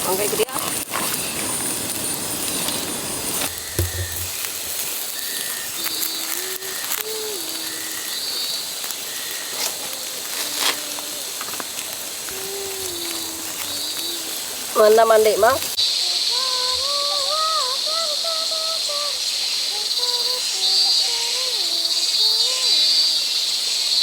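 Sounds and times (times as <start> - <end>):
fire crackling: 0.0 - 23.2
grill fire hissing: 0.0 - 24.0
faint wavering tone: 3.4 - 10.3.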